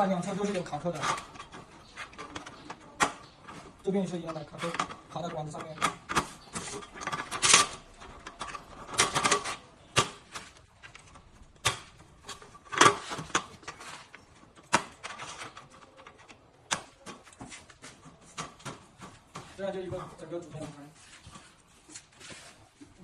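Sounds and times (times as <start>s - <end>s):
plastic clips snapping onto metal tubes: 14.6s - 17.4s.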